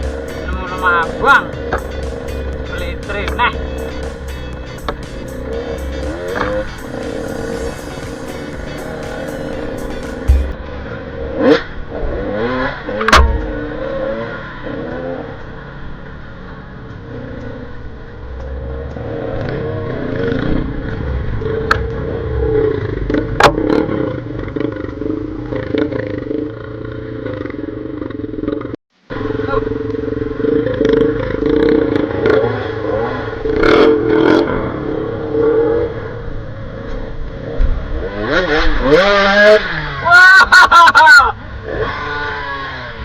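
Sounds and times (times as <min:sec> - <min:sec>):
motorcycle engine revving: 0:00.0 - 0:10.6, 0:29.8 - 0:40.0, 0:41.4 - 0:43.0.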